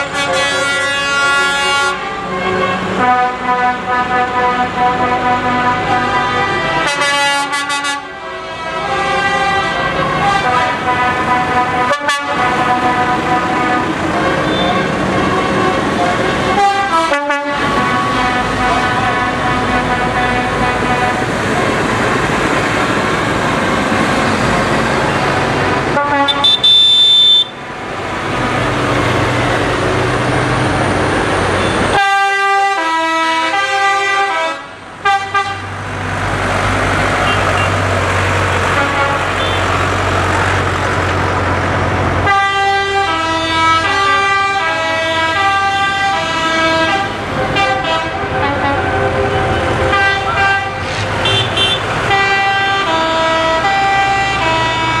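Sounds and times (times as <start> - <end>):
horns tooting: 0.0 - 27.6, 31.4 - 35.8, 37.1 - 37.9, 38.5 - 39.9, 42.2 - 55.0
tractors rolling past: 17.6 - 32.0, 35.6 - 42.4.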